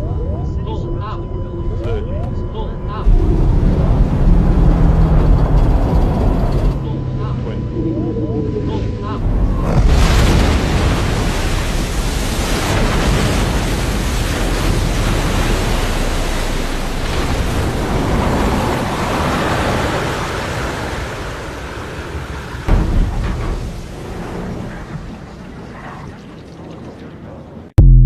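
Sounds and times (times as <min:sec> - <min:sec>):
rushing water and spray: 0:09.2 - 0:26.3.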